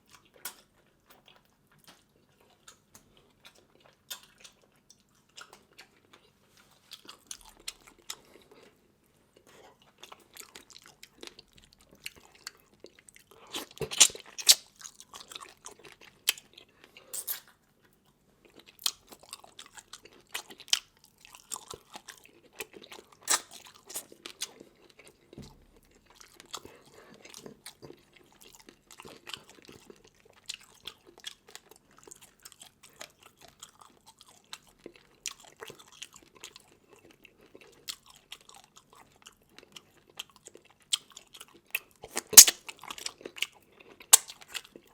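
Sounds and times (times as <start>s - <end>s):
wet chewing: 0.0s - 8.8s, 9.4s - 25.4s, 26.0s - 44.9s
crunching bites into crab: 13.5s - 14.7s, 42.2s - 43.3s, 44.1s - 44.5s.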